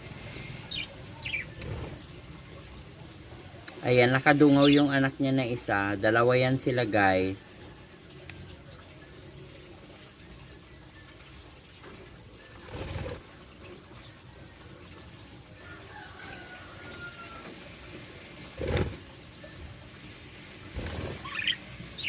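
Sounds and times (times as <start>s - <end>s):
steady background hiss: 0.0s - 5.7s
budgerigars calling: 21.2s - 22.0s.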